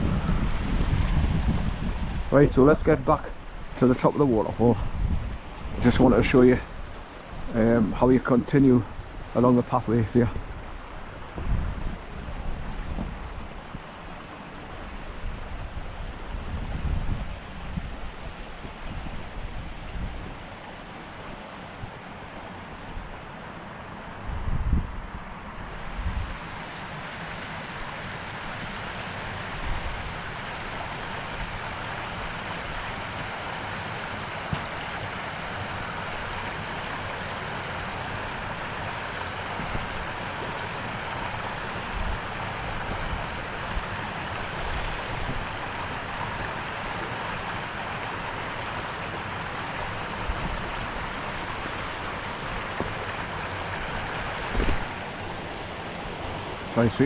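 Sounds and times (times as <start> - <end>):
water rushing over boulders: 0.0 - 57.0
low thumps on microphone: 11.3 - 11.7, 54.5 - 54.9.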